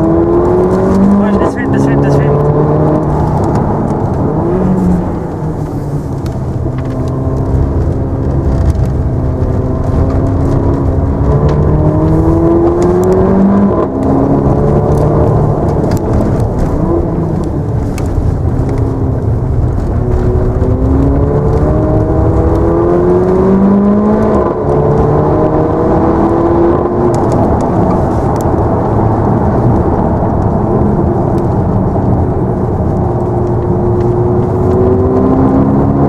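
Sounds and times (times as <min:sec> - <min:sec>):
car engine accelerating in cabin: 0:00.0 - 0:36.0.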